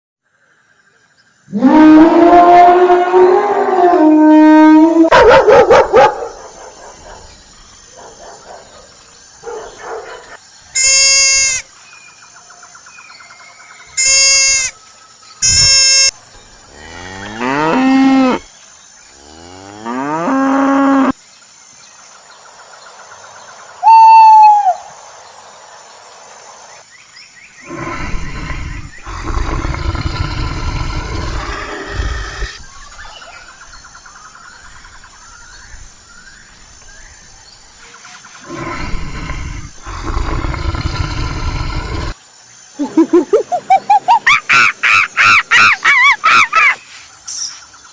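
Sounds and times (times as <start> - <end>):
other animal calls: 23.8 - 24.9.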